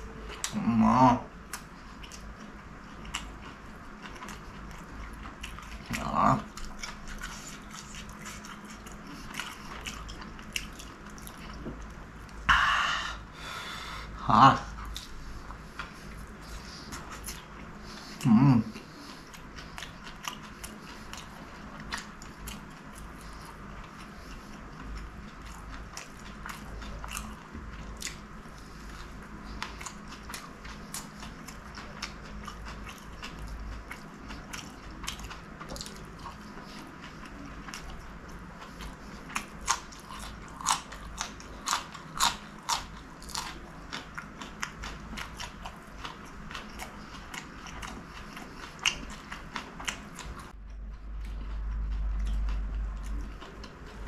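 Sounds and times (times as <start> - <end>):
wet chewing clicks: 18.8 - 54.0.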